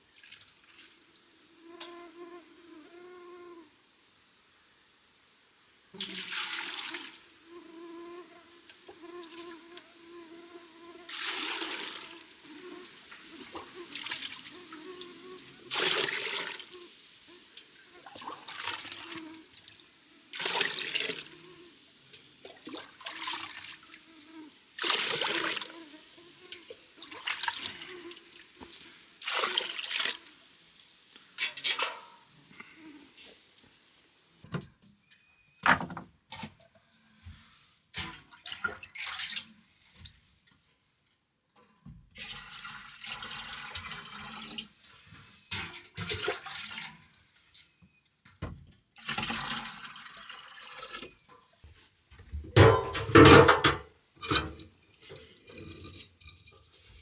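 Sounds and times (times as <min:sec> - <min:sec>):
water splashing and pouring: 0:06.0 - 0:07.2, 0:11.1 - 0:12.3, 0:15.6 - 0:16.7, 0:17.6 - 0:21.3, 0:24.8 - 0:25.7, 0:27.0 - 0:30.4, 0:38.0 - 0:40.1, 0:42.2 - 0:47.0, 0:49.0 - 0:51.2.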